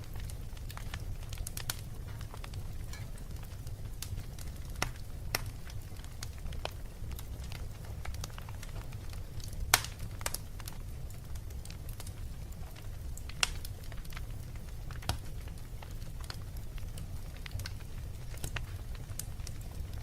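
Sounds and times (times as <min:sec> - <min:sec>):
sharp fire pops: 0:00.0 - 0:10.8
wood fire crackling: 0:00.0 - 0:20.0.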